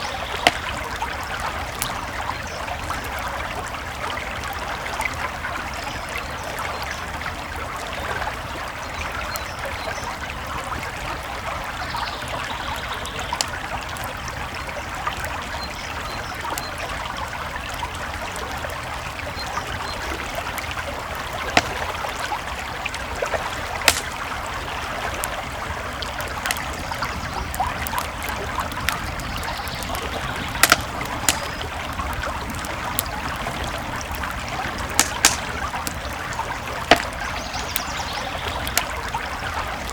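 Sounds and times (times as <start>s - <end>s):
campfire crackling: 0.0s - 39.9s
creek flowing: 0.0s - 39.9s
sharp pop from fire: 21.6s - 22.3s, 23.8s - 24.5s, 30.4s - 31.6s, 34.7s - 36.0s.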